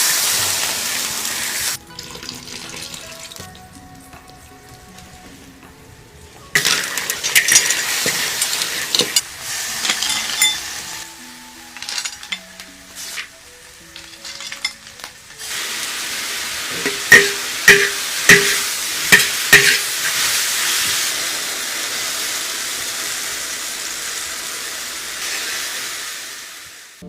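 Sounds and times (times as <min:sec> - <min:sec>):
food sizzling in a pan: 0:00.0 - 0:03.4, 0:06.5 - 0:27.0
utensil knocking against pan: 0:16.8 - 0:19.9.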